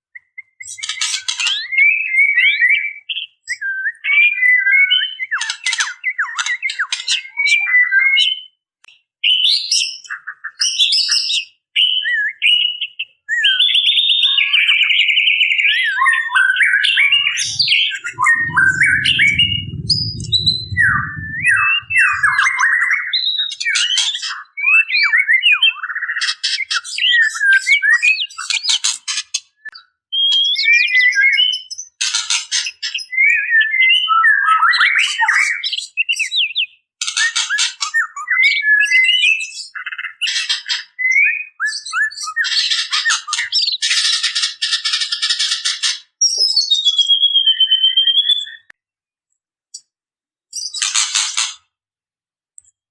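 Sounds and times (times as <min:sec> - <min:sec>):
low rumble: 0:17.0 - 0:22.7.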